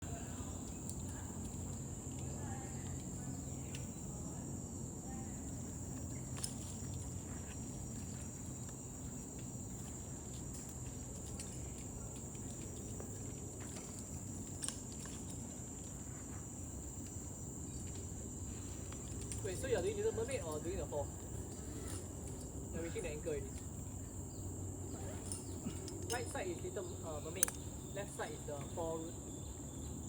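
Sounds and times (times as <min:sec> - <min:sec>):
sharp clicks: 0:27.3 - 0:27.7.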